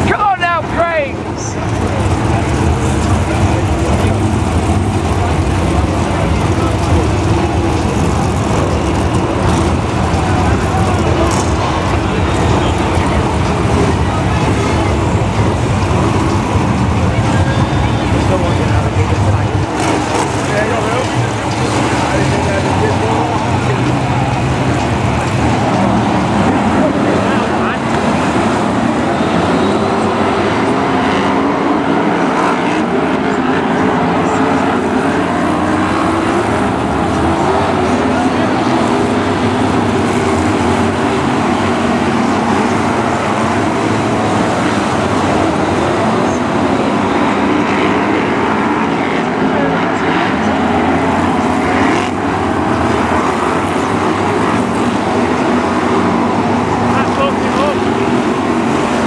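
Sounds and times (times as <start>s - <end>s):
racing car engines droning: 0.0s - 59.0s.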